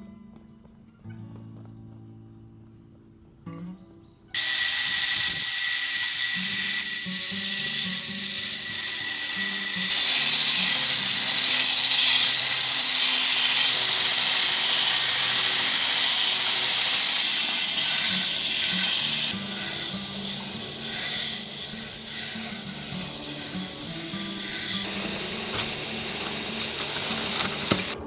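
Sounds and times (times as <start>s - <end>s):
faint background music: 0.0s - 4.4s
loud steady hiss: 4.4s - 28.0s.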